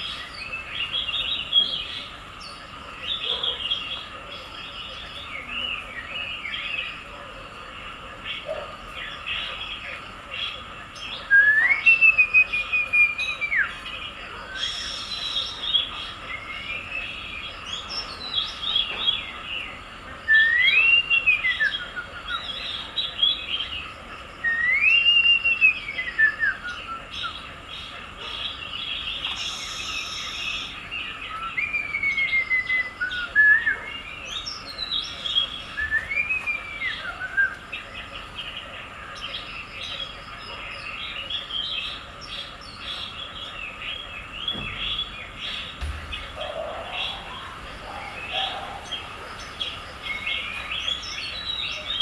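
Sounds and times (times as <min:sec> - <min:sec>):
birds chirping and twittering: 0:00.0 - 0:52.0
whistled bird call: 0:11.2 - 0:13.8, 0:14.4 - 0:17.1, 0:20.2 - 0:23.4, 0:24.4 - 0:27.4, 0:29.2 - 0:38.1.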